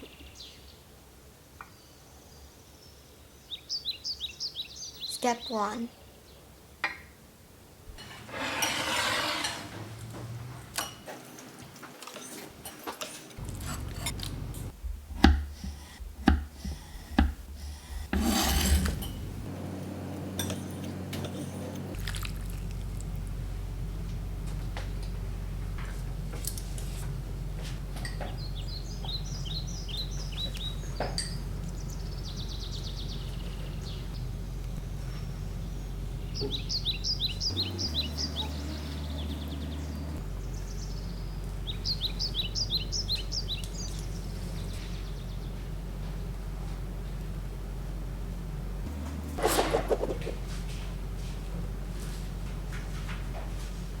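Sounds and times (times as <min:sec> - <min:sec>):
scraping and rustling: 0:07.9 - 0:19.6, 0:48.9 - 0:54.0
utensils and dishes clinking: 0:08.0 - 0:14.7, 0:18.1 - 0:19.5, 0:20.2 - 0:22.6, 0:31.1 - 0:31.5
steady low hum: 0:13.4 - 0:54.0
birds chirping: 0:15.6 - 0:26.3, 0:27.1 - 0:47.0.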